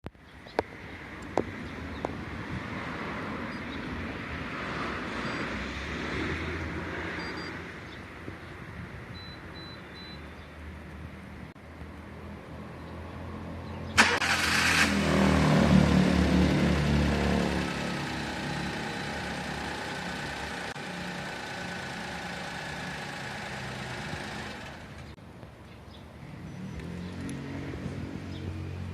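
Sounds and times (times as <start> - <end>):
small engine running: 16.6 - 25.2.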